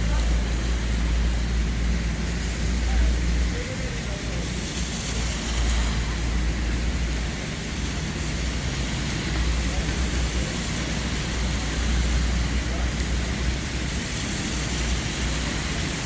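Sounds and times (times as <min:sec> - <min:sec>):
low traffic rumble: 0:00.0 - 0:16.0
tyres hissing on wet road: 0:00.0 - 0:16.0.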